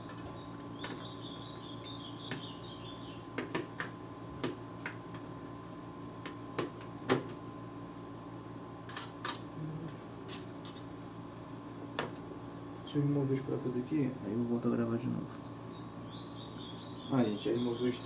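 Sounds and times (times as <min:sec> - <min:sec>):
high warbling chirp: 0:00.0 - 0:03.3, 0:15.4 - 0:18.0
faint hum: 0:00.0 - 0:18.0.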